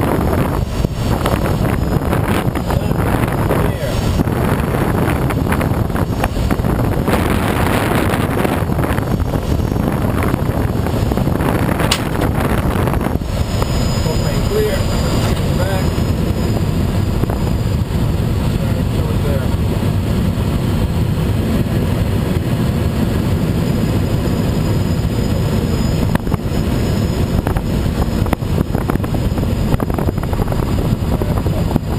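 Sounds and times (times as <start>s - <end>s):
airflow rushing in cockpit: 0.0s - 31.9s
wind buffeting microphone: 0.0s - 31.9s
sharp rattles and clicks: 11.8s - 12.4s.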